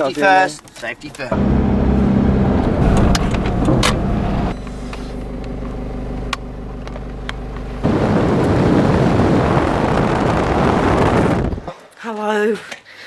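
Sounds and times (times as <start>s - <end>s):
car engine humming: 0.0s - 10.2s.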